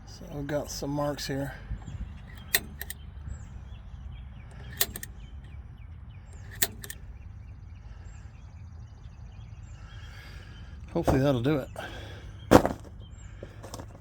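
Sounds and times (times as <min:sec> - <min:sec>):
steady low rumble: 0:00.0 - 0:13.6
light metallic tick: 0:02.2 - 0:03.5, 0:04.5 - 0:05.6, 0:06.3 - 0:07.1.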